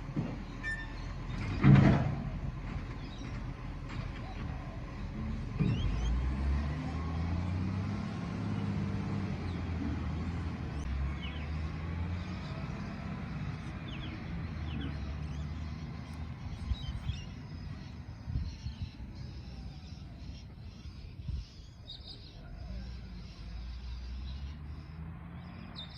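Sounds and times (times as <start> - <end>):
birds chirping: 0.0 - 25.9
diesel engine droning: 0.0 - 25.9.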